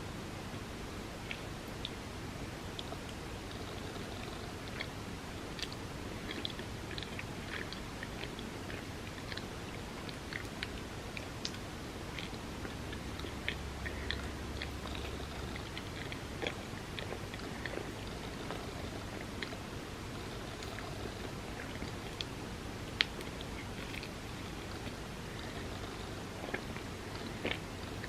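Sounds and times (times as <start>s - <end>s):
person chewing: 5.6s - 19.6s, 20.2s - 28.0s
wet mouth clicks: 5.6s - 19.6s.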